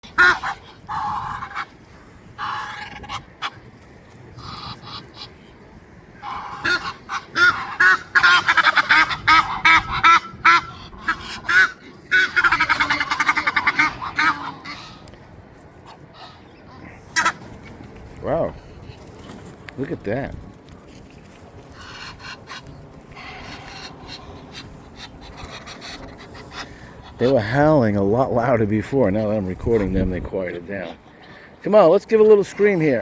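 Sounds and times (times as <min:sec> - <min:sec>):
waterfowl calling: 0:00.0 - 0:03.6, 0:04.3 - 0:05.5, 0:06.2 - 0:17.8, 0:21.7 - 0:27.8.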